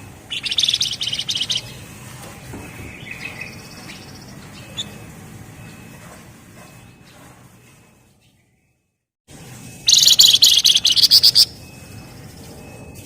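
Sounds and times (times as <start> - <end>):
bird singing rapid trill: 0.0 - 2.0, 2.6 - 6.0, 9.8 - 13.0
faint higher bird trill: 0.3 - 2.0, 2.7 - 8.9, 9.8 - 13.0
soft bird chirps: 0.3 - 2.0, 2.6 - 5.9, 9.8 - 13.0.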